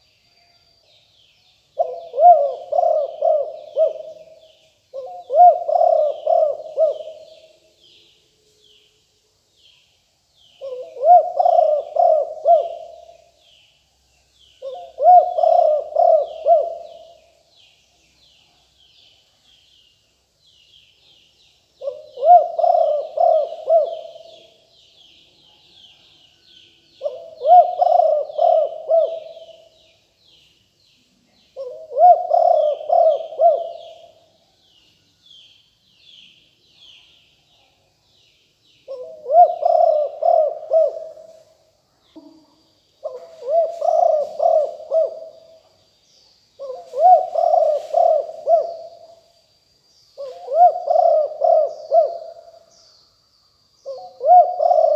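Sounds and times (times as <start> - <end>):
small birds chirping: 0.0 - 54.9
dove cooing: 1.8 - 7.6, 10.6 - 13.4, 14.6 - 17.3, 21.8 - 24.6, 27.0 - 29.8, 31.6 - 34.3, 38.9 - 41.5, 43.0 - 45.6, 46.6 - 49.2, 50.2 - 52.7, 53.8 - 54.9.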